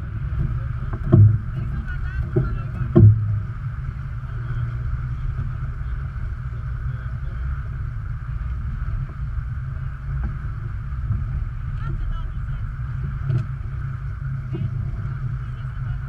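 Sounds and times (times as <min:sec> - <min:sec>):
water rushing along hull: 0:00.0 - 0:16.0
wind rumbling on microphone: 0:00.0 - 0:16.0
short knock: 0:01.0 - 0:01.6, 0:02.3 - 0:03.5.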